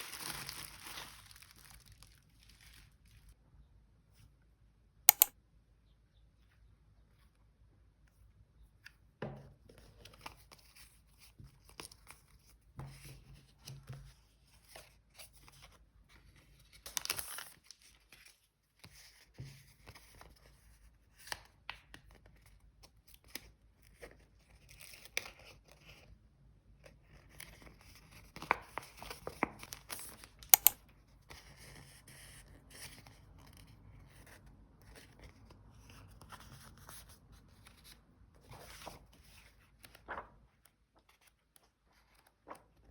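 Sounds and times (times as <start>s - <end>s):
paper rustling: 0.0s - 3.2s, 36.0s - 41.3s
paper and stickers handled: 0.0s - 3.3s, 8.9s - 26.1s, 26.8s - 42.9s
small clicks: 5.1s - 5.4s, 30.5s - 30.8s.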